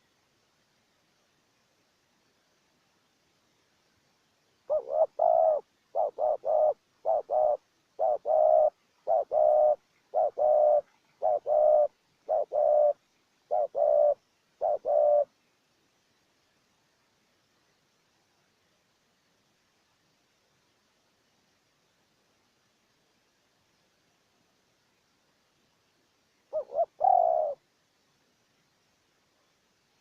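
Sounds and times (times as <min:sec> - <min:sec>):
dove cooing: 0:04.7 - 0:15.4, 0:26.5 - 0:27.6.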